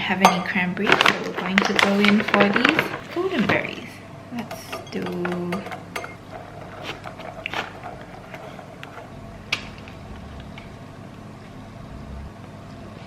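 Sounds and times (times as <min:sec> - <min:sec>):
steady low hum: 0:00.0 - 0:13.0
bowl and utensils clicking: 0:04.4 - 0:09.1.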